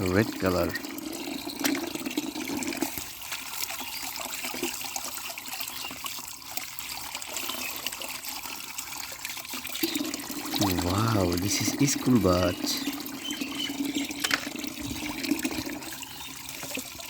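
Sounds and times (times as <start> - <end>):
water splashing and trickling: 0.0 - 17.0
water drops pattering: 9.3 - 17.0.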